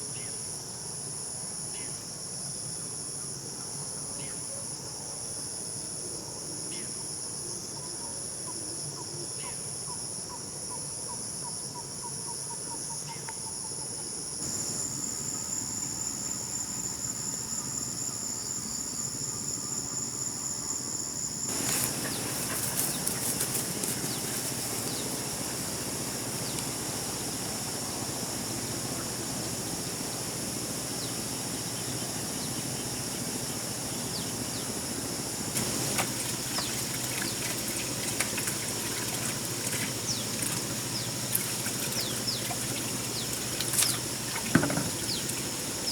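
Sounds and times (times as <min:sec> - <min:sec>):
insects trilling: 0:14.3 - 0:45.9
broad hiss with sharp clicks: 0:21.5 - 0:45.9.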